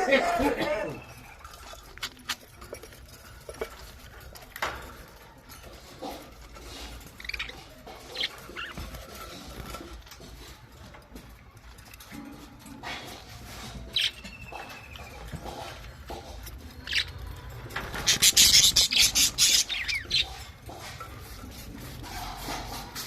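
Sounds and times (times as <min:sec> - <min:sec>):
light clicks and scratches: 0:01.0 - 0:23.0
budgerigars chirping: 0:06.7 - 0:09.4, 0:16.8 - 0:17.2, 0:18.0 - 0:20.8.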